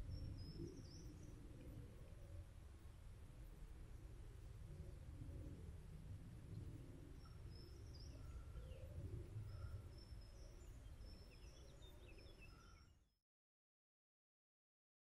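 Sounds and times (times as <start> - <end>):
faint birdsong: 0.0 - 2.3, 6.5 - 13.1.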